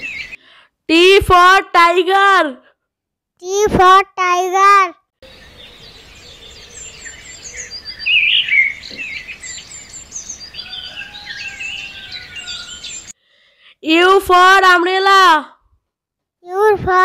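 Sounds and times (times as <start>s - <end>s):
small birds chirping: 0.0s - 0.6s, 5.2s - 13.2s.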